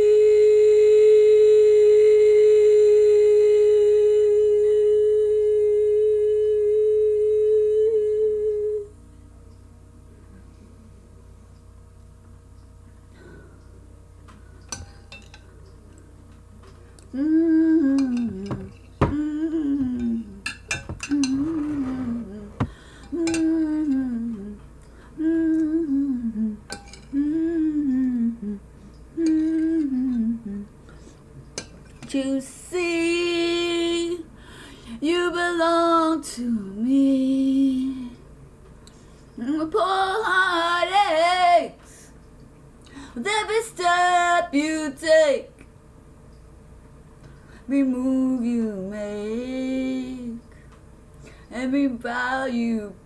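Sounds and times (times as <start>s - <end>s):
person humming: 0.0s - 9.0s, 17.0s - 20.4s, 21.0s - 24.6s, 25.2s - 30.7s.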